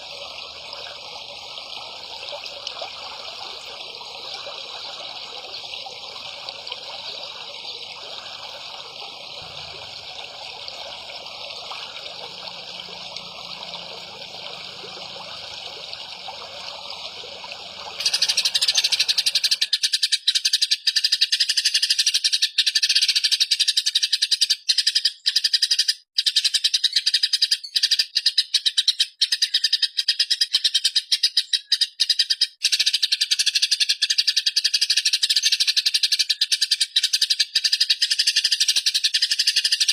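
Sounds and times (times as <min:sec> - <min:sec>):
water trickling: 0:00.0 - 0:19.7.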